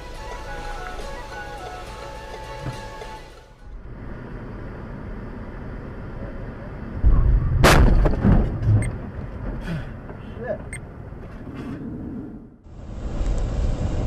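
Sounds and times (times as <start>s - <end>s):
car road noise: 0.0s - 14.0s
heavy low rumble: 3.6s - 14.0s
sharp bang of impact: 7.0s - 8.6s.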